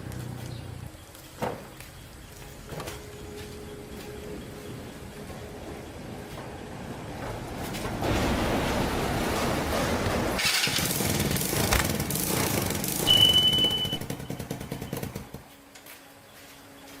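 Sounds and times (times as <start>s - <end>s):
small motorbike engine running: 10.6s - 15.4s.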